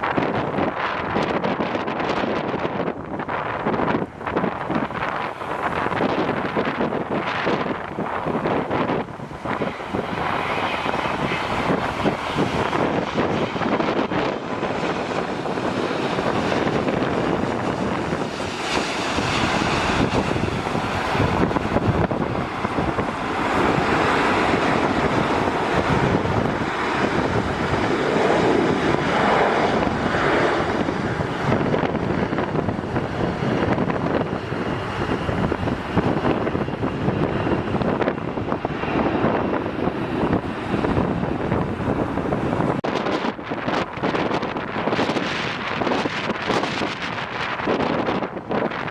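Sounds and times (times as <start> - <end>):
strong wind buffeting microphone: 0.0 - 48.9.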